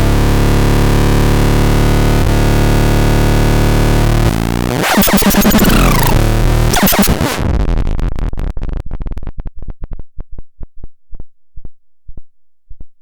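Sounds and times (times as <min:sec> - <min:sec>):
short low synth pulses: 0:04.2 - 0:09.8
noisy synthesizer texture: 0:04.3 - 0:07.8.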